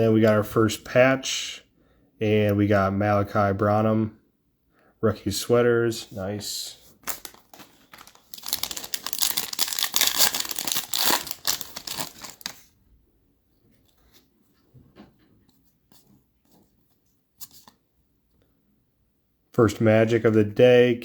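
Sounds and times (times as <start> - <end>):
wrapper tearing and crinkling: 7.0 - 12.7.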